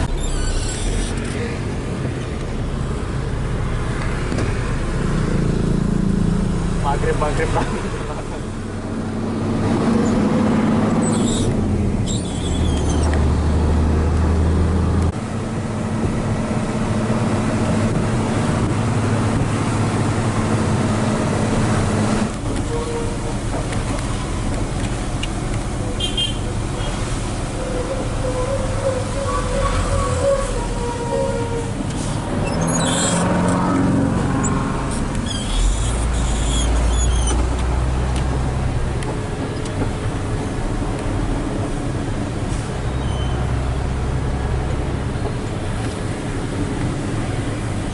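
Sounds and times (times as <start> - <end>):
short high squeaks: 0.0 - 1.4, 11.0 - 13.2, 27.7 - 33.6, 35.2 - 37.5, 42.9 - 43.5
road noise: 0.0 - 47.9
truck diesel engine running: 13.3 - 42.9.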